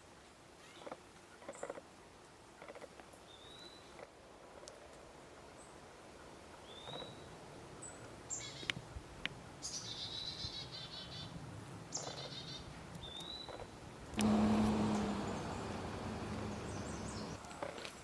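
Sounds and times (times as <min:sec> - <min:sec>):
songbird chip notes: 0:14.1 - 0:17.4
loud noise with low hum: 0:14.2 - 0:17.4.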